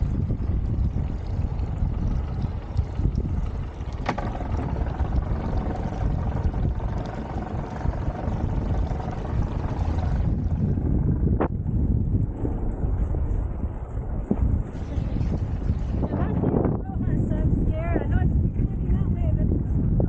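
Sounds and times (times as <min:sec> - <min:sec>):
boat motor running: 0:00.0 - 0:19.3
wind rumbling on microphone: 0:00.0 - 0:20.0.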